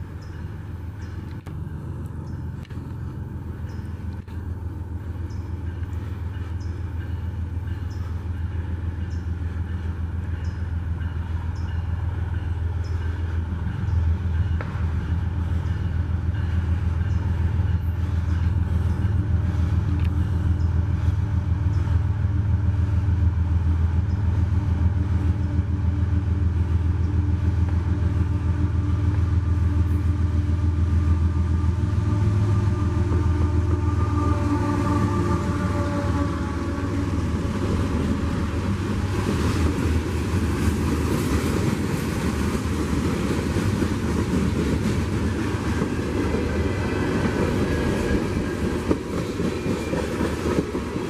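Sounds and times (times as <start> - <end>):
diesel locomotive rumble: 0.0 - 51.0
locomotive horn: 28.8 - 39.2.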